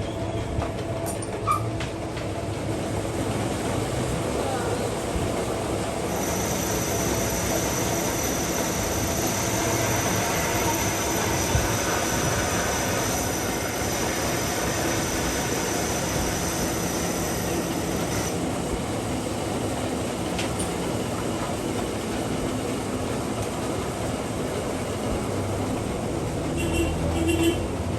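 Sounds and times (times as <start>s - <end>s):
metal lathe running: 2.6s - 27.9s.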